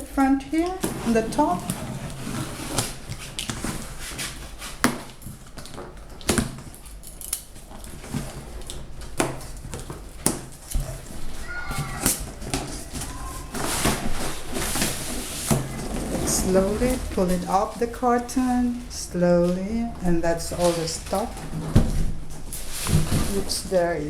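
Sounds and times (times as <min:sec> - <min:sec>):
steady low hum: 0:07.6 - 0:24.0
cardboard box being opened: 0:12.0 - 0:17.5.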